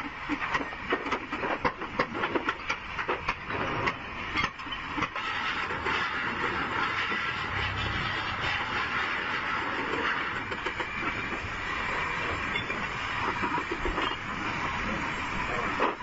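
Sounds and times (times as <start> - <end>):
steady rushing noise: 5.0 - 16.0.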